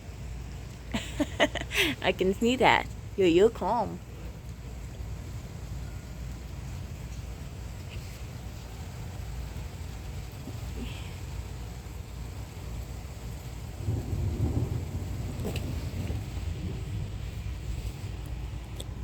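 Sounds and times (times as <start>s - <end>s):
rain falling: 0.0s - 19.0s
thunder rumbling: 8.8s - 19.0s.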